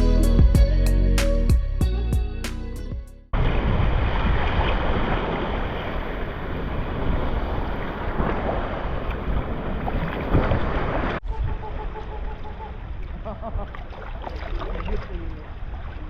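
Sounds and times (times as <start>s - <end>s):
sea water rushing: 3.4s - 11.2s.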